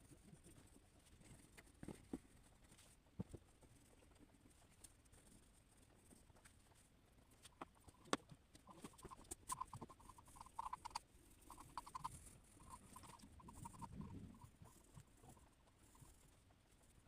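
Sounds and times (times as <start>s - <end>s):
squeaky drawing strokes: 7.8s - 16.3s.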